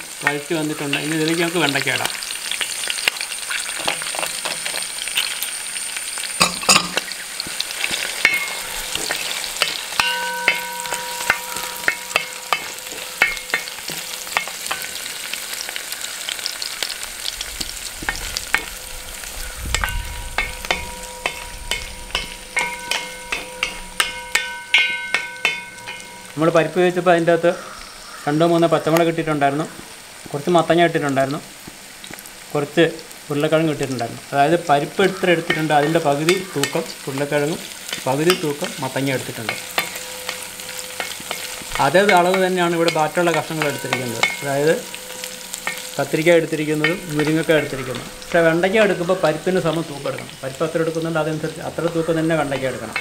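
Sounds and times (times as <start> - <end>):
vegetables sizzling in oil: 0.0 - 53.0
wooden spatula scraping brass pan: 6.4 - 16.8, 17.6 - 26.9, 34.8 - 50.3, 51.8 - 53.0.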